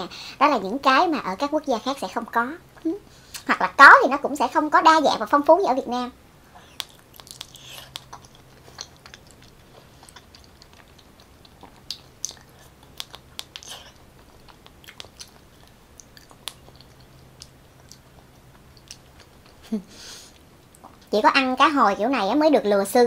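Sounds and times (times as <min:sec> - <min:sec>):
faint low hum: 0:00.0 - 0:23.0
wet chewing mouth clicks: 0:06.6 - 0:19.6, 0:20.4 - 0:21.1.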